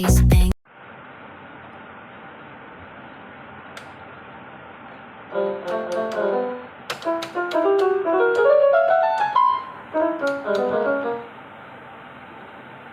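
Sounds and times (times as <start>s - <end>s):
electronic keyboard piano notes: 5.3s - 11.4s.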